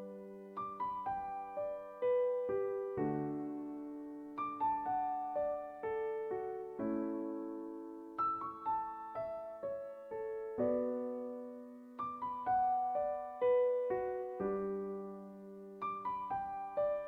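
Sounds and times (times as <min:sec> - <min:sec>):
slow gentle piano music: 0:00.0 - 0:17.0.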